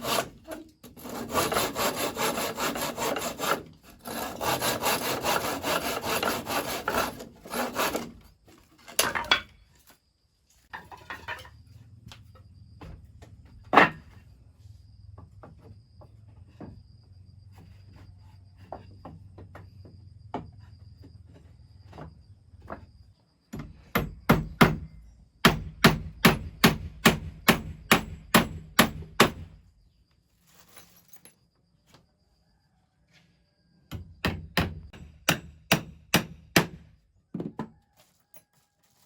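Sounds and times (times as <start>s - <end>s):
saw cutting through wood: 0.0s - 8.2s.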